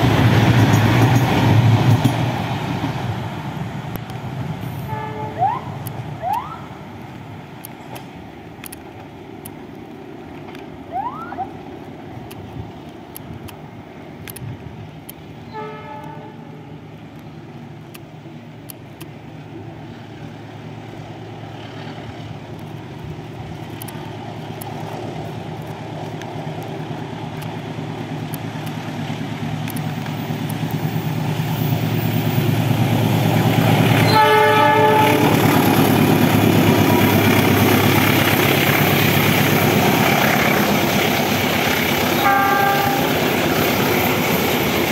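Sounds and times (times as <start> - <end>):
diesel train passing: 0.0 - 44.9
train horn: 4.8 - 6.4, 15.5 - 16.7, 34.0 - 35.4, 42.1 - 43.2.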